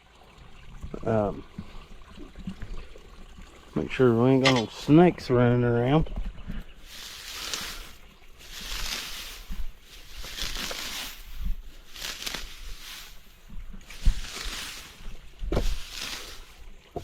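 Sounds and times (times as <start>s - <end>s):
shovel scraping dirt: 6.9s - 17.0s.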